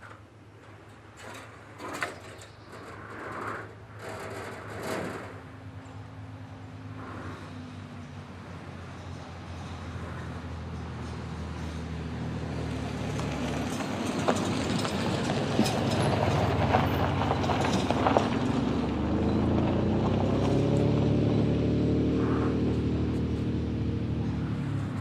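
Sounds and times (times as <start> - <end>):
sharp knocks and clatters: 0.0 - 5.5
engine running: 0.0 - 25.0.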